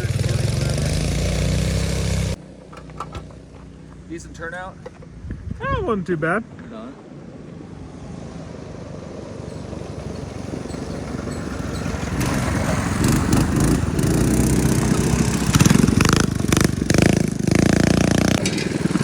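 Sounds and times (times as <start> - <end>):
minibike engine running: 0.0 - 5.2, 9.5 - 19.0.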